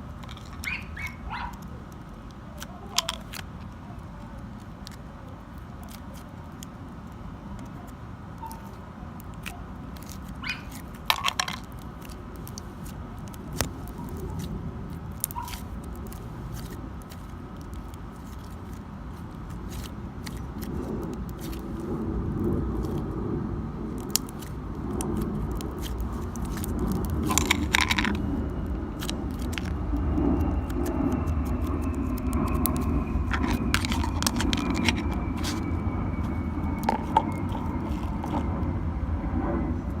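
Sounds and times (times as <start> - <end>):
steady low rumble: 0.0 - 40.0
slime clicking and popping: 23.9 - 35.6.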